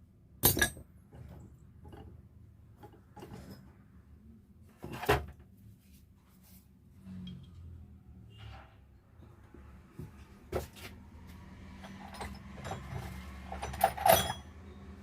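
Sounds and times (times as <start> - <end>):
metal parts and tools clicking: 0.4 - 0.9, 11.7 - 14.8.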